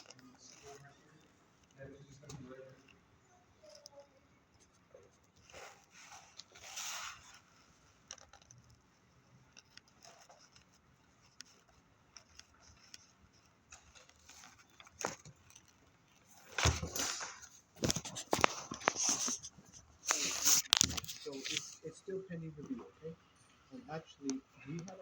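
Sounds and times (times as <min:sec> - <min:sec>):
handling noises: 0:04.6 - 0:21.9
rustling: 0:04.6 - 0:22.0.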